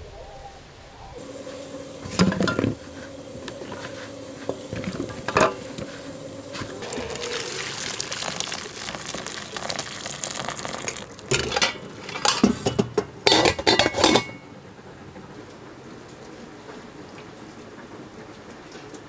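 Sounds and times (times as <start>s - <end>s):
utensil scraping a pan: 1.2s - 14.5s
clattering dishes: 1.2s - 14.6s.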